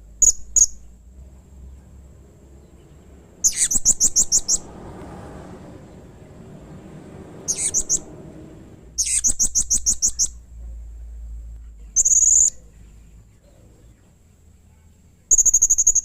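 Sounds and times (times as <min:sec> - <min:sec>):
parrot chirping: 0:00.2 - 0:01.0, 0:02.6 - 0:04.8, 0:07.4 - 0:08.2, 0:08.9 - 0:10.4, 0:12.0 - 0:12.6, 0:15.3 - 0:16.0.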